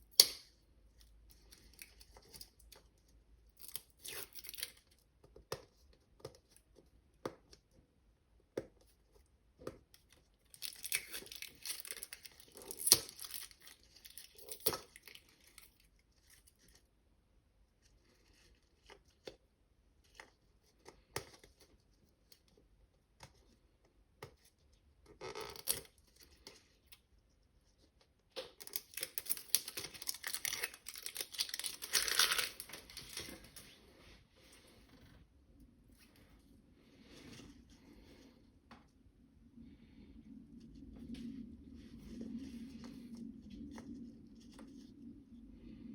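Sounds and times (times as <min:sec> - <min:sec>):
wrapping crinkling and tearing: 0:03.4 - 0:05.0, 0:10.4 - 0:16.8, 0:28.5 - 0:33.8.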